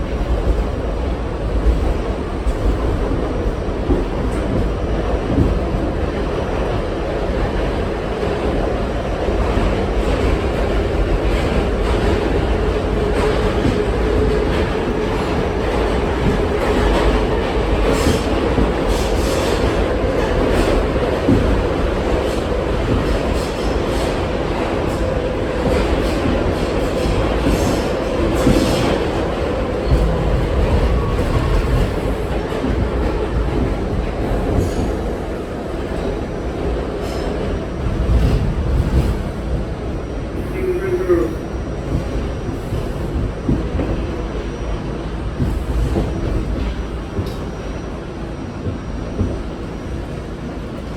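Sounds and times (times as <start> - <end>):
wheels rumbling on rail: 0.0 - 50.9
faint rail clacks: 41.9 - 50.9.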